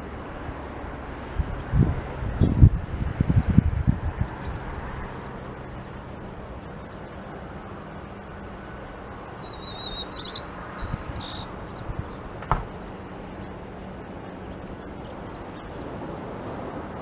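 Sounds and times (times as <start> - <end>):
songbirds chirping and trilling: 0.0 - 17.0
steady background hiss: 0.0 - 17.0
low thumps: 12.0 - 13.0.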